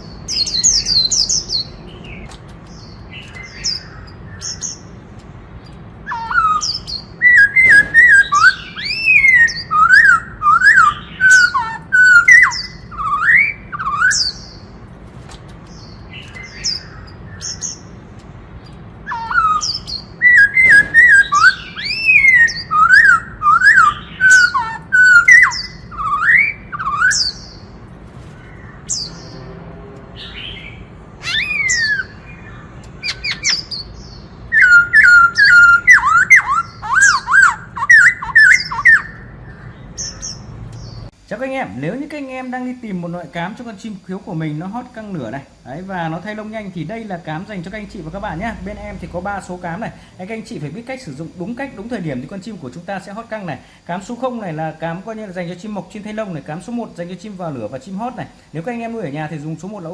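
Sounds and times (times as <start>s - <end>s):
high bird chirps: 0.0s - 41.2s
bird singing whistled phrases: 6.0s - 14.6s, 19.0s - 27.6s, 30.2s - 40.4s.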